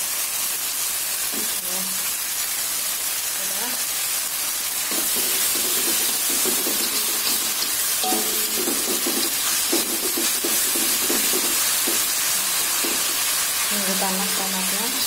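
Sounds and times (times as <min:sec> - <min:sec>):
vegetables sizzling in a wok: 0:00.0 - 0:15.0
metal spatula scraping a wok: 0:04.9 - 0:13.3.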